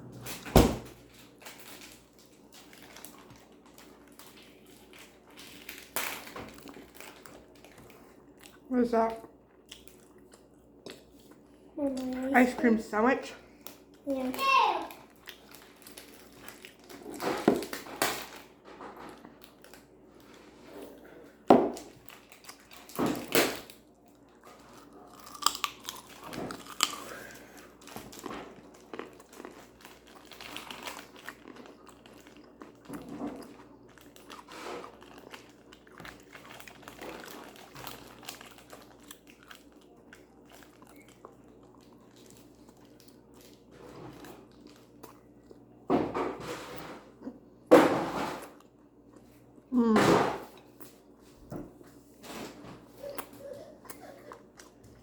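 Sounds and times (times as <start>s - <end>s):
biting and chewing food: 0.9s - 12.4s, 13.5s - 45.8s, 52.9s - 55.0s
loud food crunches: 24.6s - 43.6s.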